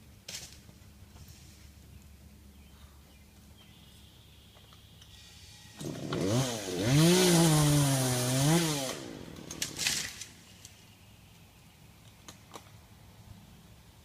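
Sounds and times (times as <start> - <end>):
chainsaw cutting wood: 5.1 - 10.3.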